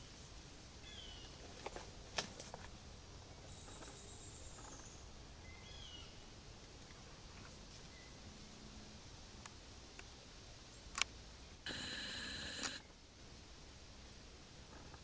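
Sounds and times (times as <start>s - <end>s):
faint high bird chirps: 7.9s - 8.2s.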